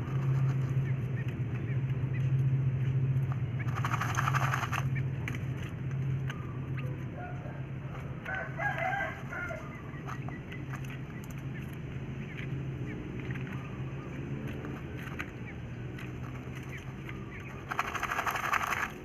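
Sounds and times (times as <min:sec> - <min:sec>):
rapid wingbeats and scratching: 0:00.0 - 0:19.0
steady low hum: 0:00.0 - 0:19.0
rooster crowing: 0:07.1 - 0:09.8.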